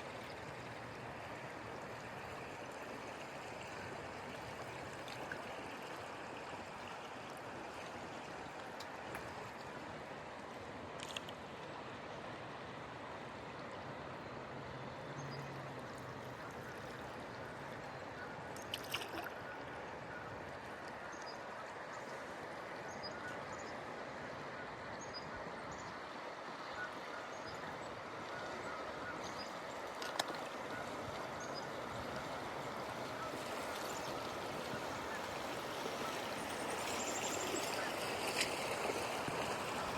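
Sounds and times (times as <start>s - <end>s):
river water rushing: 25.6s - 39.9s.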